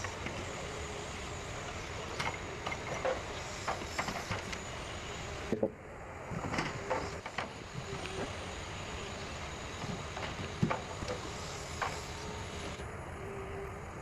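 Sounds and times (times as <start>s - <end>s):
forestry machine engine running: 0.0s - 14.0s
knocks and clunks: 9.8s - 12.0s.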